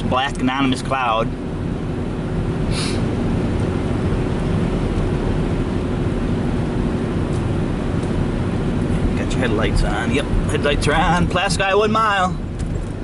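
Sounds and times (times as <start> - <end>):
car road and engine noise: 0.0 - 13.0
brief hiss: 2.7 - 3.1.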